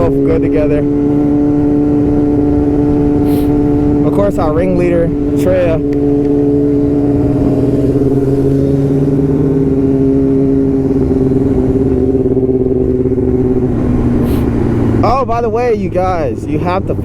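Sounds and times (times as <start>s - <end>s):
motorcycle engine cruising: 0.0s - 17.0s
road and wind noise: 0.0s - 17.0s.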